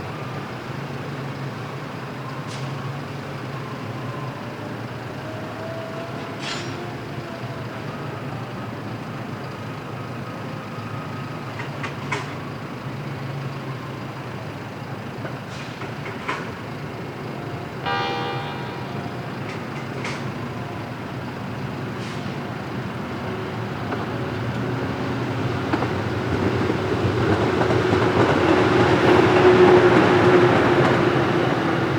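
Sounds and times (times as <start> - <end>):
freight train rumbling: 15.3 - 21.5, 22.2 - 31.9.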